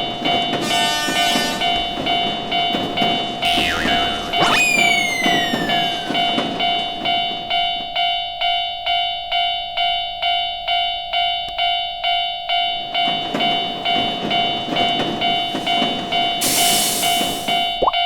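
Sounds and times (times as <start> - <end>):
railroad crossing bell ringing: 0.0 - 17.8
loud hiss: 16.4 - 17.5.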